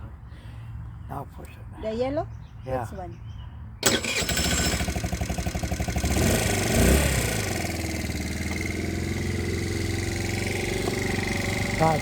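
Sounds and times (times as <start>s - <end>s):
motorcycle engine revving and idling: 3.8s - 12.0s.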